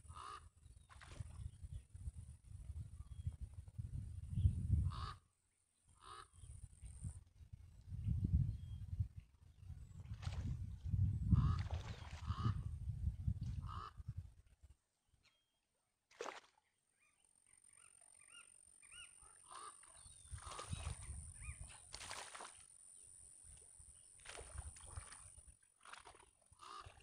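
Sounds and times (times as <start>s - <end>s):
honking bird calls: 18.9s - 20.9s.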